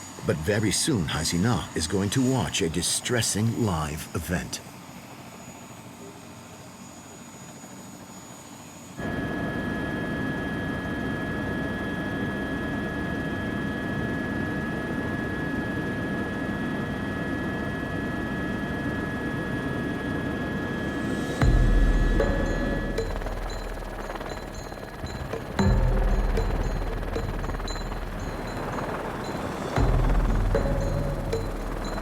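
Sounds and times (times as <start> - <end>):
helicopter engine and rotor: 0.0 - 32.0
low rumble: 21.4 - 32.0.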